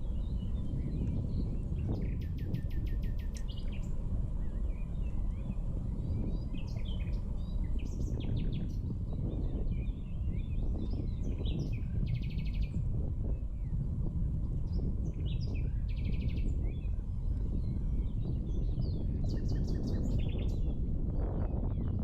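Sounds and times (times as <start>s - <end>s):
songbirds chirping: 0.0s - 22.0s
steady low rumble: 0.0s - 22.0s
rapid ticks: 3.0s - 4.0s.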